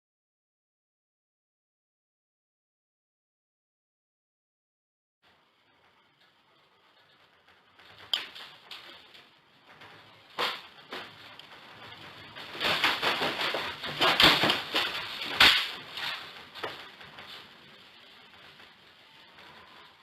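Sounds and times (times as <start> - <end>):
objects rattling and knocking: 6.2 - 20.0
loud bangs: 7.4 - 20.0.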